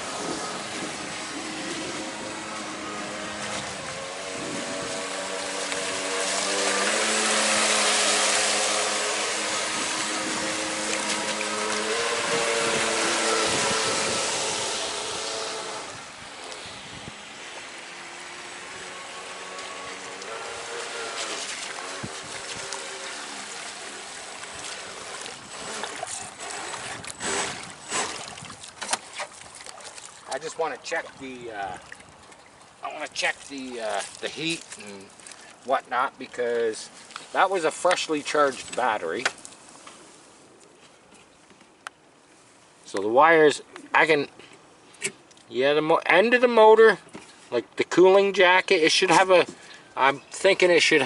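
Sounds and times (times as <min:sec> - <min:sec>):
electric motor whine: 0:00.0 - 0:28.2
hull hissing through water: 0:00.0 - 0:28.5
sharp splashes and knocks: 0:00.2 - 0:15.9, 0:19.4 - 0:35.6.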